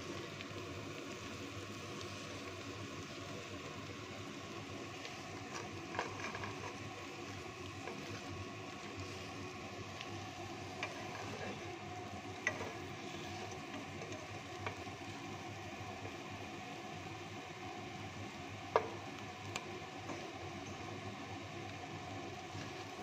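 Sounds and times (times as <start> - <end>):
cheese sizzling in a pan: 0.0 - 23.0.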